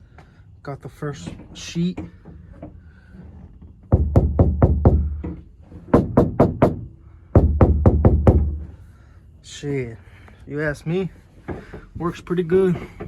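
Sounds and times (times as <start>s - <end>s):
knuckles knocking on metal roof: 3.9s - 8.7s.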